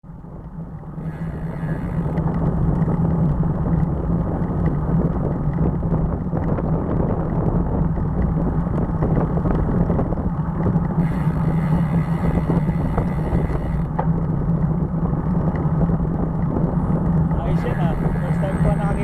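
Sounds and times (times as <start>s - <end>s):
constant low drone: 0.0s - 19.0s
road and wind rumble: 0.0s - 19.0s.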